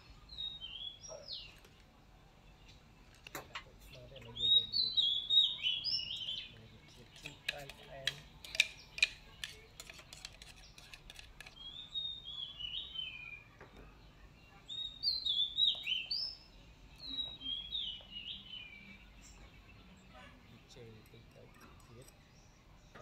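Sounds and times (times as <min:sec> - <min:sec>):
songbird whistling: 0:00.0 - 0:01.6, 0:03.9 - 0:06.6, 0:11.5 - 0:13.6, 0:14.6 - 0:20.0.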